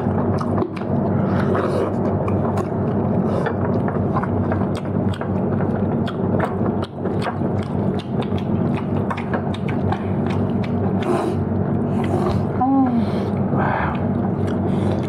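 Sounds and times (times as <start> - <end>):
chewing and mouth smacks: 0.0 - 12.6, 13.3 - 15.0
steady low hum: 0.0 - 15.0.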